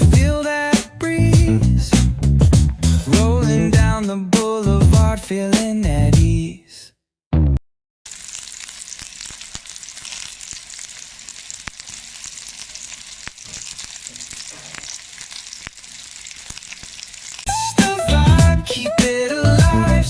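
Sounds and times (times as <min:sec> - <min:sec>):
music snatch: 0:00.0 - 0:06.3, 0:17.5 - 0:20.0
food sizzling in hot oil: 0:08.1 - 0:18.3.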